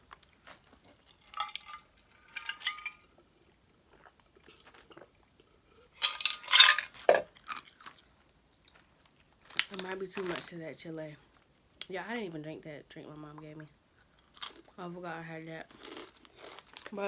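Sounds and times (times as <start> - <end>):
clattering handling noises: 0.4 - 3.1, 6.0 - 7.3
chips crunching: 6.0 - 10.5, 14.0 - 14.8, 15.7 - 17.0.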